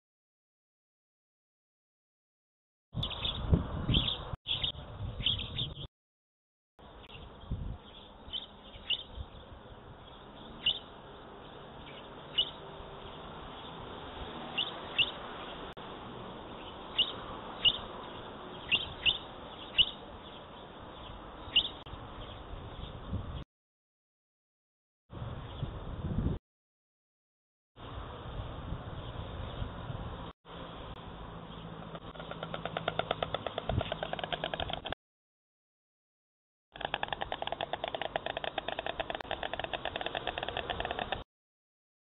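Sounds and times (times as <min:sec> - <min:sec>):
small birds chirping: 0:03.0 - 0:05.9, 0:06.8 - 0:15.7, 0:16.4 - 0:23.4, 0:31.4 - 0:35.0, 0:36.8 - 0:41.2
outdoor background hiss: 0:06.8 - 0:23.4, 0:27.8 - 0:34.7.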